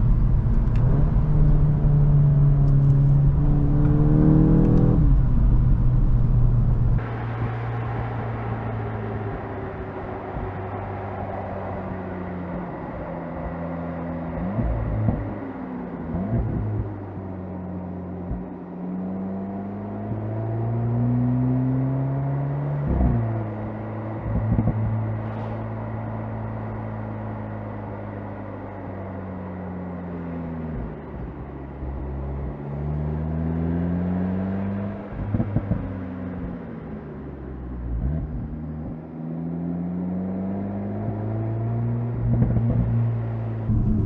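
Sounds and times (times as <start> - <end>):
car engine accelerating: 0.0 - 44.0
sharp exhaust bangs: 43.6 - 44.0.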